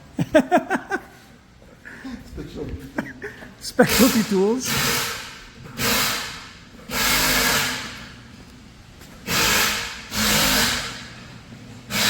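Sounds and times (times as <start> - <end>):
power tool whirring: 3.8 - 8.1, 9.3 - 11.2.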